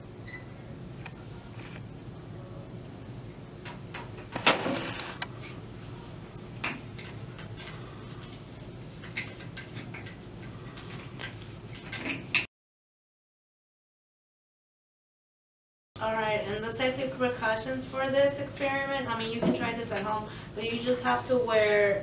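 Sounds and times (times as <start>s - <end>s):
low steady hum: 0.0s - 11.8s.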